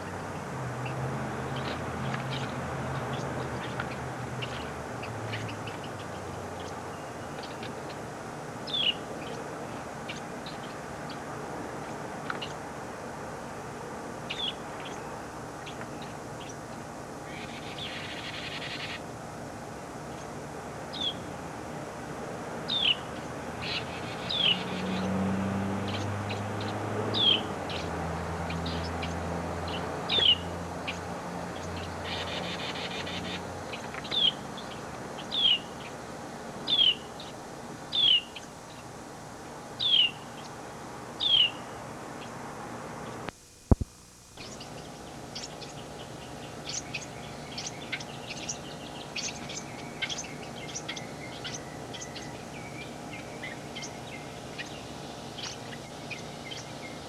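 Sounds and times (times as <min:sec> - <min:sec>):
small bird chirping: 0:01.5 - 0:08.0, 0:08.6 - 0:09.4, 0:14.3 - 0:19.0, 0:20.9 - 0:21.2, 0:22.7 - 0:25.2, 0:25.8 - 0:31.0, 0:31.6 - 0:36.0, 0:36.6 - 0:38.9, 0:39.8 - 0:40.6, 0:41.2 - 0:42.3, 0:44.4 - 0:57.0.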